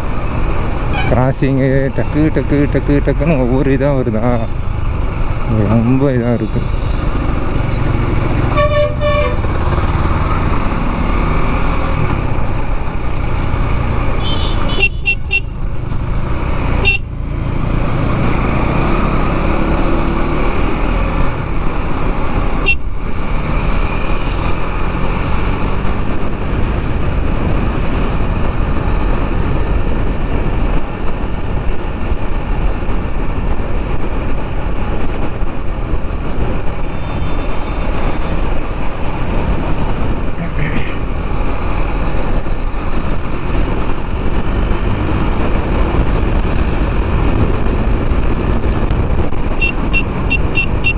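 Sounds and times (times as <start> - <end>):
motorcycle engine rumbling: 0.0 - 50.9
short high horn toot: 0.9 - 1.2, 8.5 - 9.4
vehicle horn honking: 0.9 - 1.2, 8.5 - 9.5, 14.2 - 15.6, 16.8 - 17.1, 49.6 - 50.9.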